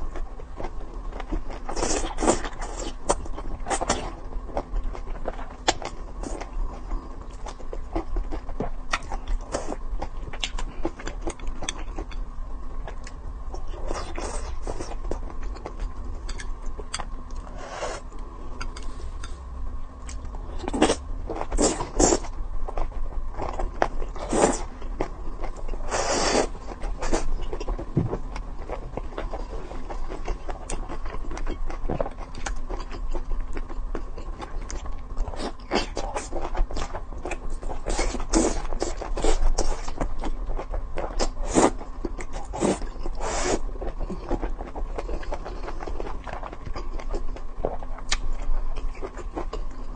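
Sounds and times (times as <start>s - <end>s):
steady background hum: 0.0s - 49.9s
wet chewing sounds: 20.0s - 49.9s.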